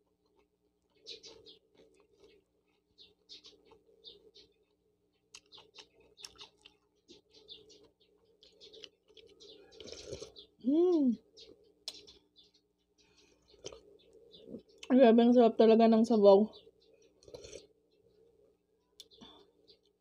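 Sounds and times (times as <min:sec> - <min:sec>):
wet chewing smacks: 0:04.6 - 0:07.2, 0:07.8 - 0:10.4, 0:13.4 - 0:14.2.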